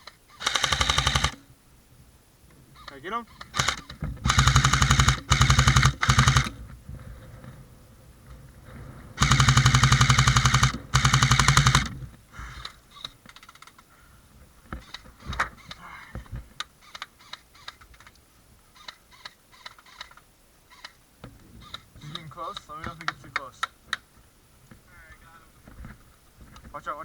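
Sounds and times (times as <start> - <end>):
airsoft gun rapid bursts: 0.4 - 1.4, 3.4 - 6.6, 9.2 - 12.0.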